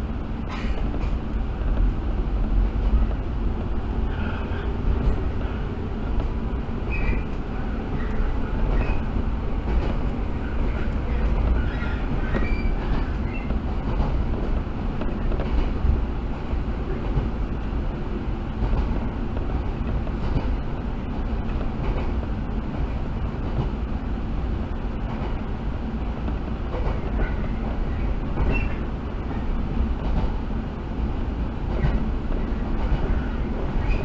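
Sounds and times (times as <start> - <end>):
train wheels rumbling on rail: 0.0 - 34.0
short high squeaks: 11.6 - 13.5.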